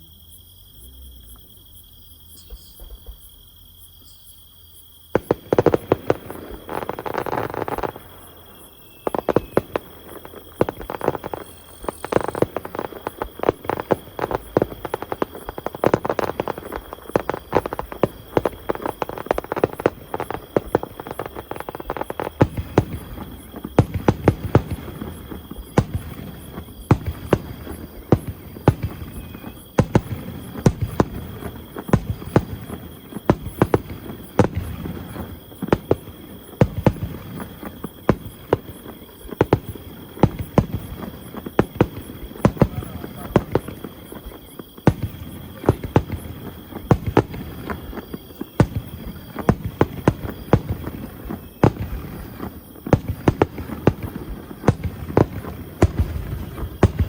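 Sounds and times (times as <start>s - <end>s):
fireworks bangs and crackles: 5.1s - 57.0s
crowd chatter: 42.6s - 43.5s.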